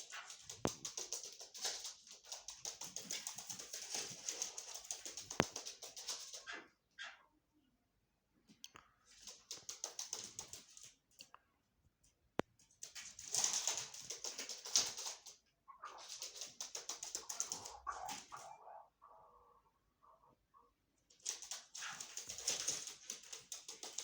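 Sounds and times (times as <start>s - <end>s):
partridges calling: 17.2s - 20.7s.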